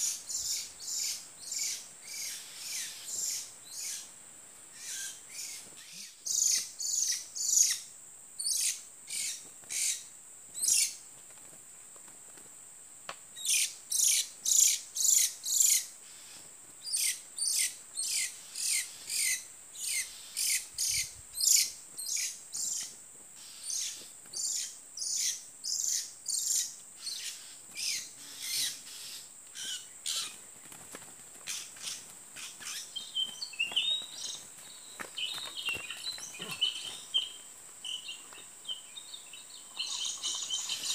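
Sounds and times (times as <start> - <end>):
high insect drone: 0.0 - 40.9
soft bird twittering: 31.5 - 40.9.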